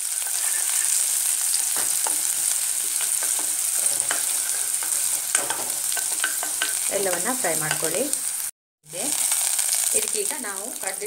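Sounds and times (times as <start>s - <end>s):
onion sizzling in oil: 0.0s - 11.0s
wooden spatula scraping pan: 0.3s - 8.0s.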